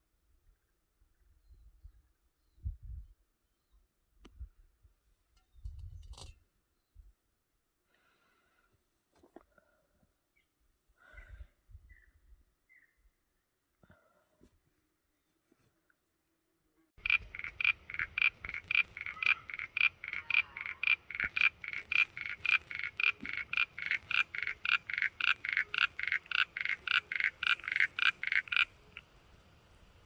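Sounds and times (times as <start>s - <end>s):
frog croaking: 17.0s - 30.0s.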